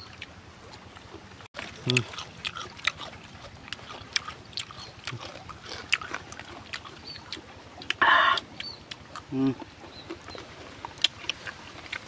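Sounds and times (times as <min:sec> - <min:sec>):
chewing and crunching: 0:00.0 - 0:12.0.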